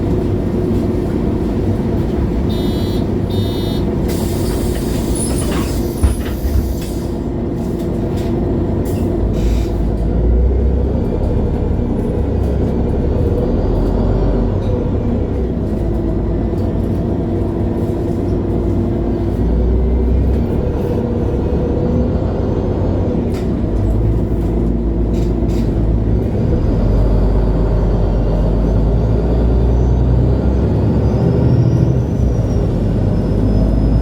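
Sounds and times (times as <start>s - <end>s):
bus engine rumbling and whining: 0.0s - 34.0s.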